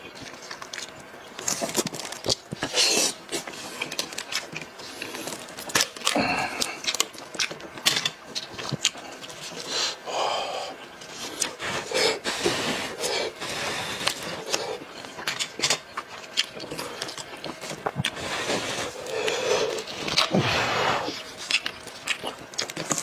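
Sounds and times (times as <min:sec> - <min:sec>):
chewing with wet smacking: 0:00.0 - 0:09.8, 0:13.0 - 0:20.4, 0:21.0 - 0:23.0
meat tearing: 0:18.9 - 0:23.0.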